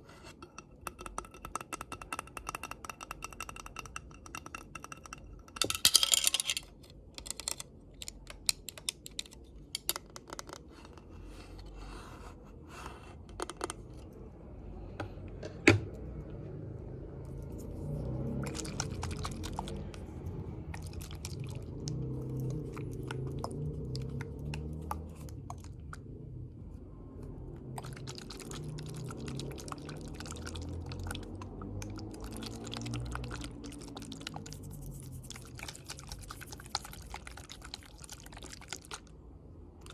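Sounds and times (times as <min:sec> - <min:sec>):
low rubbing and scratching: 0:34.4 - 0:37.2.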